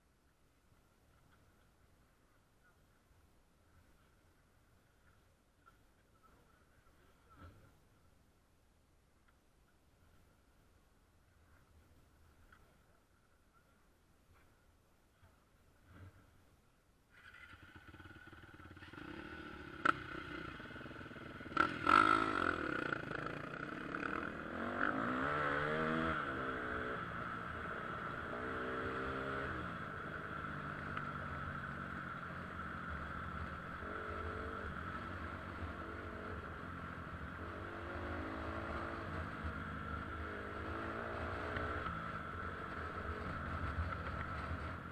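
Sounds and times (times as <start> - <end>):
dirt bike engine revving: 17.2 - 30.8.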